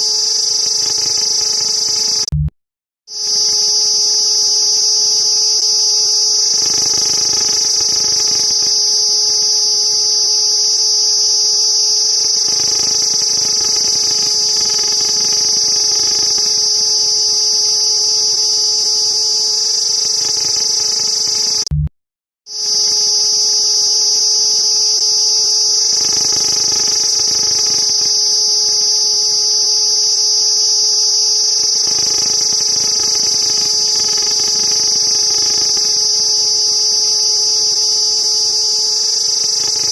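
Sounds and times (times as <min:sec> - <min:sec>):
cicadas buzzing: 0:03.2 - 0:09.4.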